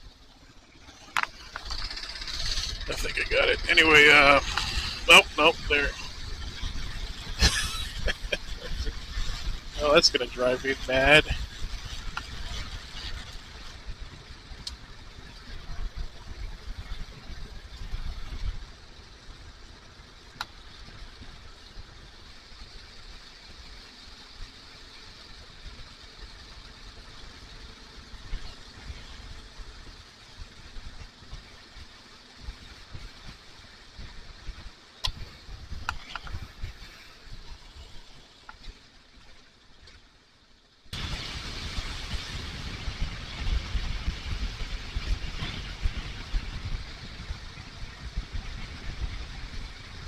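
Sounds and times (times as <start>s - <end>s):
motorcycle engine running: 0.0s - 39.8s, 40.9s - 50.0s
wind rush: 1.7s - 14.0s, 40.9s - 50.0s.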